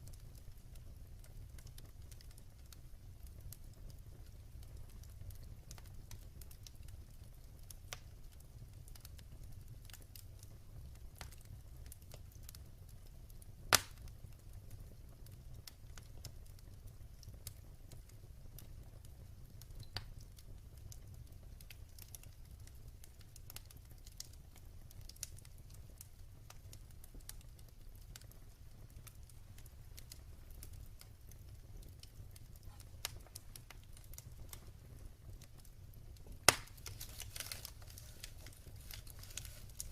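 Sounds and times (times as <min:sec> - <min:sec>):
fire crackles: 0:00.0 - 0:39.9
wood fire rumbling: 0:00.0 - 0:39.9
loud sharp pop from fire: 0:13.7 - 0:14.1, 0:36.3 - 0:39.9.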